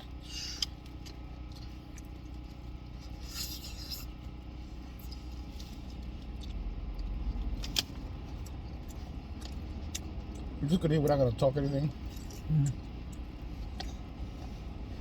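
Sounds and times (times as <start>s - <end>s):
low hum inside car: 0.0s - 15.0s.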